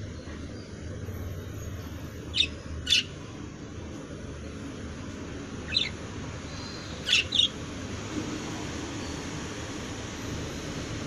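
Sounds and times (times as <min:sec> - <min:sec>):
birds chirping sharply: 0:00.0 - 0:03.3, 0:05.5 - 0:07.7.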